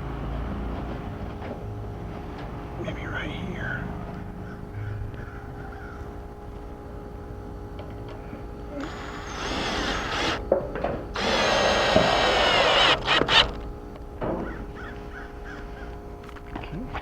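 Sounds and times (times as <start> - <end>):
power drill drilling metal: 8.8 - 10.4, 11.2 - 13.6.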